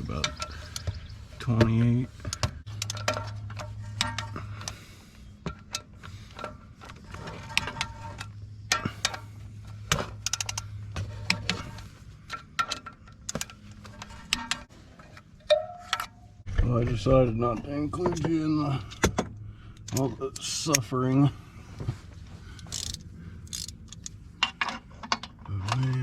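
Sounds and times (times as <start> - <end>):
steady low hum: 0.0 - 26.0
ratcheting wrench clicking: 10.2 - 10.8, 22.6 - 24.2.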